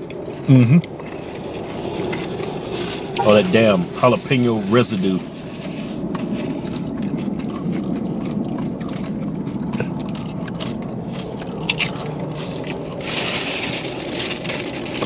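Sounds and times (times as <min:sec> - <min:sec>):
chewing crunchy chips: 0:00.0 - 0:03.8, 0:04.4 - 0:15.0
plastic bag rustling: 0:01.1 - 0:07.0, 0:11.1 - 0:15.0.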